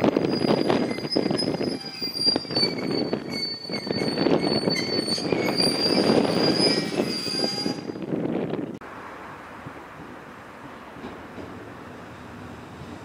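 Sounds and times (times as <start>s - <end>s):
train wheels rumbling: 0.0s - 8.8s
high-pitched squeal: 0.2s - 8.0s.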